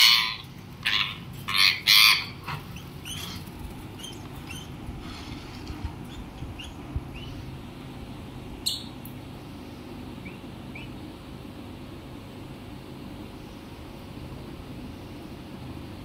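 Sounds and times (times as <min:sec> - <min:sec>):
small animals chirping: 0:00.0 - 0:04.9, 0:05.9 - 0:07.5
steady low rumble: 0:02.3 - 0:16.0.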